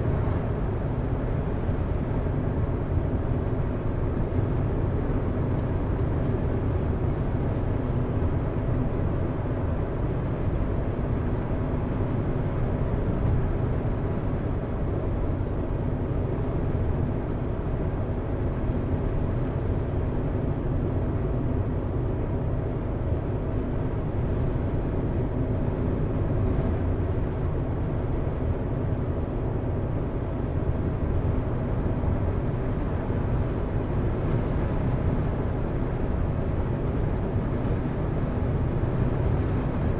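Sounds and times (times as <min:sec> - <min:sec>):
car engine and tyre noise: 0:00.0 - 0:39.9.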